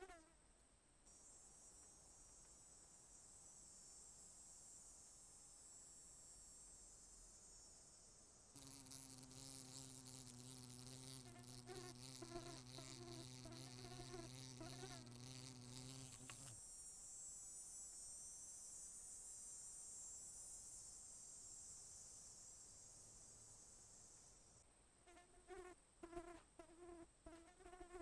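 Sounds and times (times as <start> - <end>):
flying insect buzzing: 8.6 - 16.6, 25.1 - 28.0
high-pitched insect chorus: 16.6 - 24.6.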